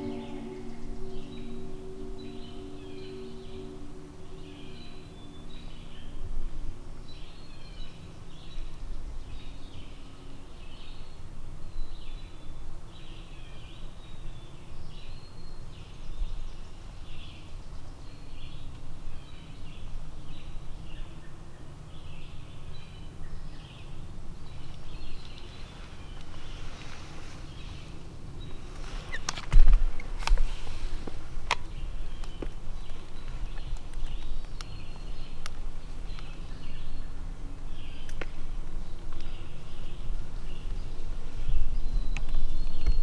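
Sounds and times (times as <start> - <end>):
songbird singing high phrases: 0.0 - 6.3
low rumble of background noise: 0.0 - 43.0.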